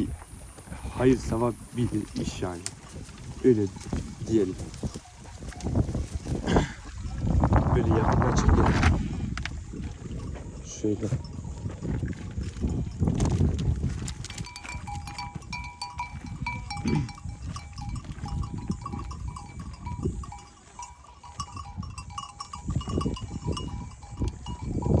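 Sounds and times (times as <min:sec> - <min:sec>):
livestock bells clinking: 0:03.3 - 0:08.0, 0:10.0 - 0:11.7, 0:12.4 - 0:25.0.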